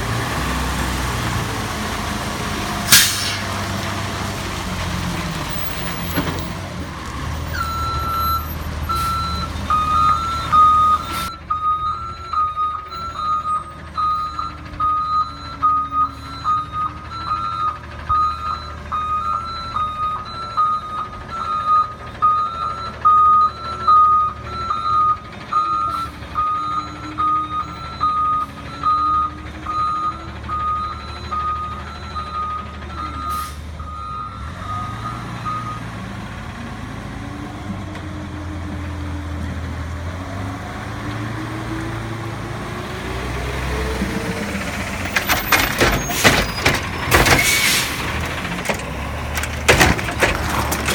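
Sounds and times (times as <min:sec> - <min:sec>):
truck engine running: 0:00.0 - 0:50.9
backup alarm beeping: 0:45.1 - 0:47.8.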